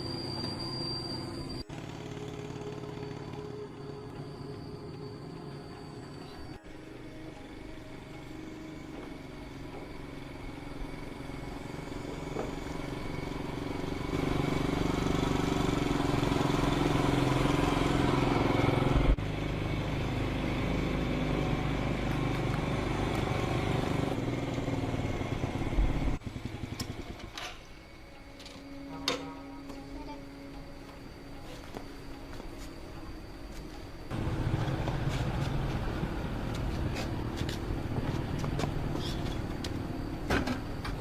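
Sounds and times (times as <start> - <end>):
vehicle engine running: 1.6 - 5.9, 6.7 - 27.4, 34.1 - 41.0.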